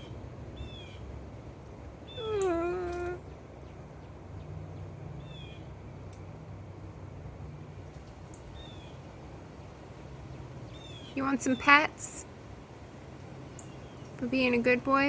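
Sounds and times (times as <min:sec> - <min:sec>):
cat meowing: 0:02.1 - 0:03.2.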